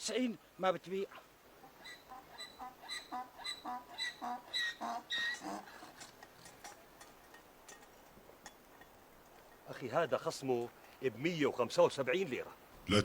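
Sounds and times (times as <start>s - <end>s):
donkey braying: 1.6s - 6.1s.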